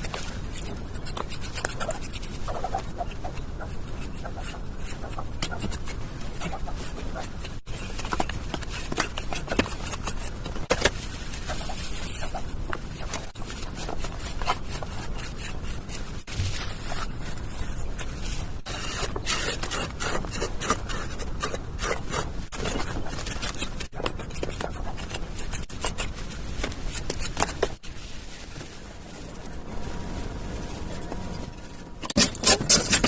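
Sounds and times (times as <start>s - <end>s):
hand tool scraping on cement: 13.2s - 26.2s, 30.8s - 33.0s.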